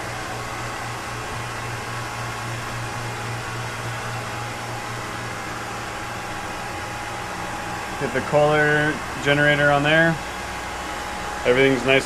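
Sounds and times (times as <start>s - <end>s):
fan-like rush of air: 0.0s - 12.0s
low machinery hum: 0.0s - 12.0s.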